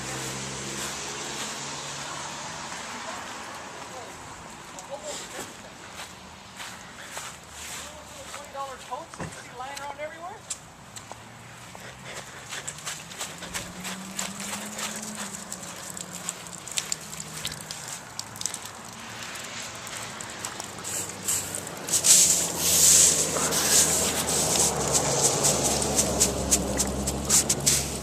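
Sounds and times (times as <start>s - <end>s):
footsteps crunching on hail: 5.0s - 9.2s, 12.2s - 28.0s
loud rushing hiss: 21.2s - 28.0s.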